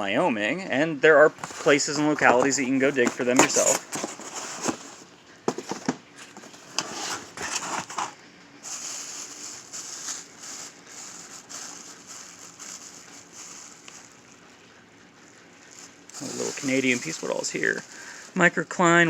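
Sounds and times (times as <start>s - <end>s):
handling clicks and knocks: 1.4s - 8.1s
packing paper rustling: 1.4s - 14.7s, 15.6s - 19.0s.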